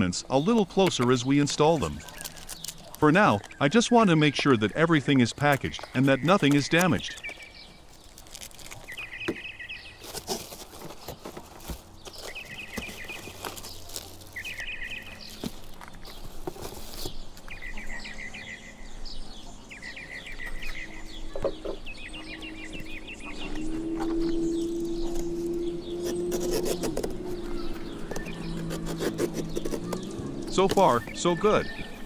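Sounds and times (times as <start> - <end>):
packaging rustling and clicking: 0.5 - 3.6, 5.2 - 9.4, 10.0 - 17.6
bird trilling: 8.7 - 10.0, 12.0 - 16.2, 17.0 - 32.0.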